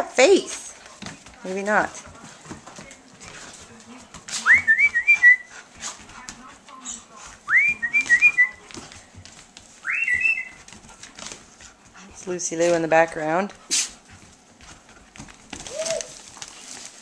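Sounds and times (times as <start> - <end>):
dogs playing on hard floor: 0.0 - 17.0
pet bird whistling: 9.8 - 10.6.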